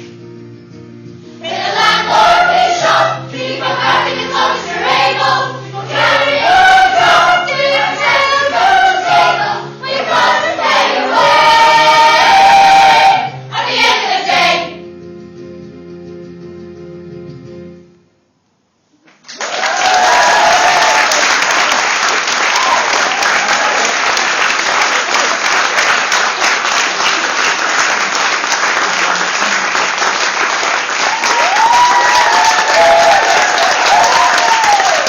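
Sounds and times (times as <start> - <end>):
group of singers holding chord: 1.4 - 14.8
audience applause: 19.1 - 35.0.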